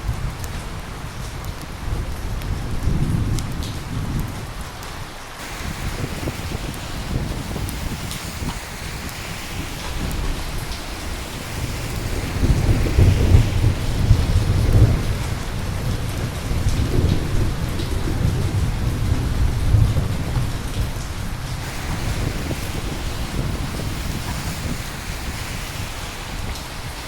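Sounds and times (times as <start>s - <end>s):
steady rain: 0.0s - 27.0s
thunder rumbling: 5.4s - 27.0s.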